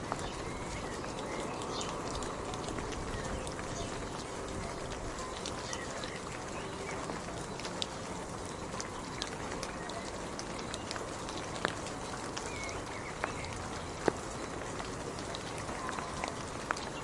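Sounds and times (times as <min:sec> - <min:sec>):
rain falling: 0:00.0 - 0:17.0
raindrops ticking on surface: 0:00.0 - 0:17.0.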